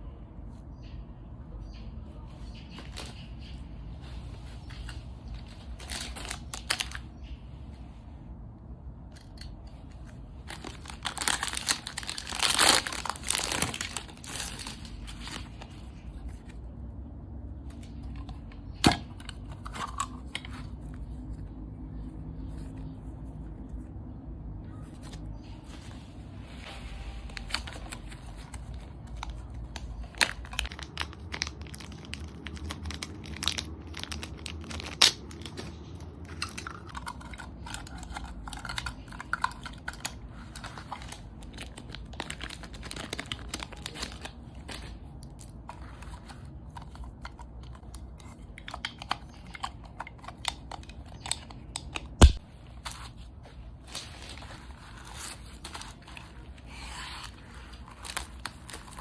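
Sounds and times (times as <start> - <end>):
packaging crinkling and tearing: 4.4 - 7.3, 9.2 - 16.7, 26.9 - 59.0.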